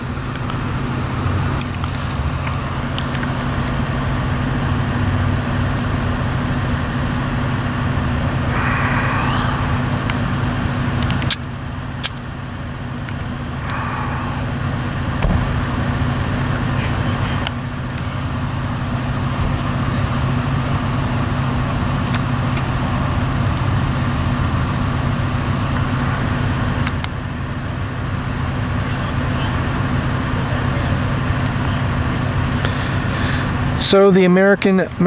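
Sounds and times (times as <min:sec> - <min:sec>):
vehicle engine humming: 0:00.0 - 0:35.0
sharp clicks: 0:11.0 - 0:12.3.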